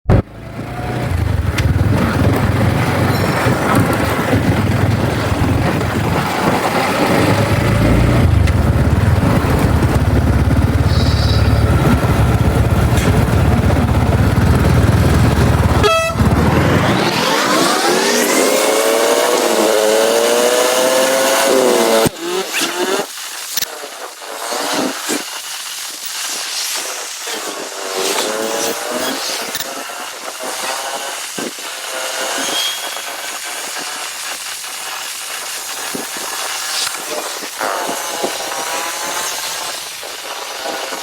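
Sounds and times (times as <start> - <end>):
motorcycle engine rumble: 0.0 - 17.2
wind rush: 0.9 - 19.0.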